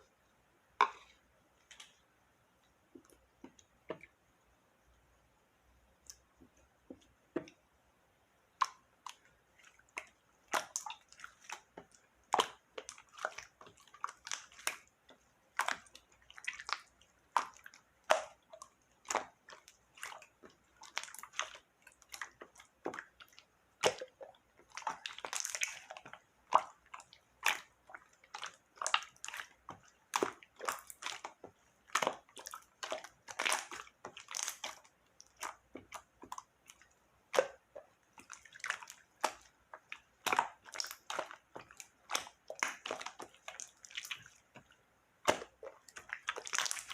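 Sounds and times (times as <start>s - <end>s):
slime squelching by hand: 0.8s - 4.2s, 8.5s - 46.9s.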